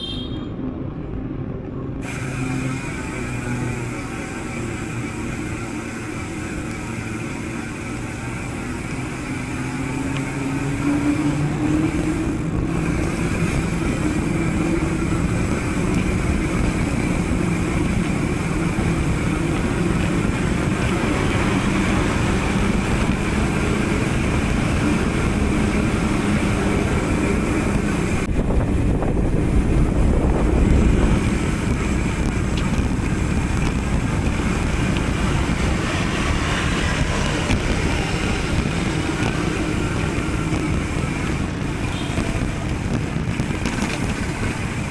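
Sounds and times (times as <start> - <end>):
small vehicle engine running: 1.9 - 44.9
wind rumble on microphone: 9.9 - 44.9.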